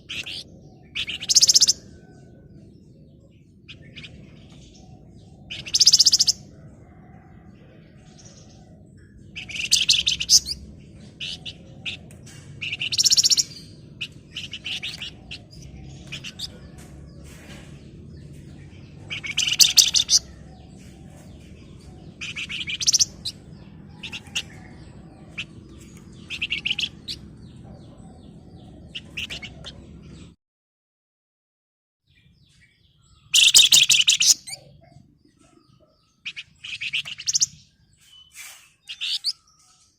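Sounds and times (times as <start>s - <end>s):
low background hum: 6.3s - 30.3s
songbird rattling trills: 19.0s - 20.4s, 33.4s - 34.6s.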